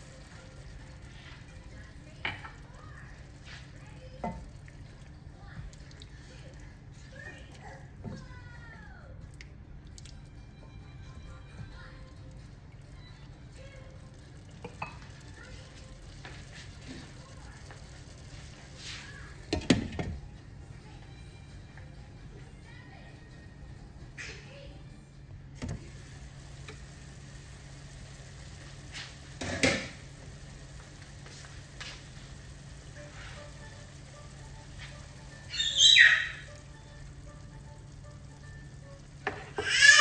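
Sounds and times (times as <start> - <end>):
chicken simmering with soft sizzle: 0.0 - 20.3, 25.8 - 40.0
soft background music: 0.0 - 40.0.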